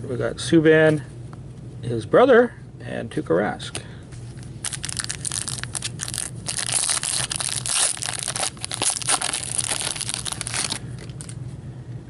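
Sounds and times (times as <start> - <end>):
wrapper being torn and crumpled: 4.6 - 11.4.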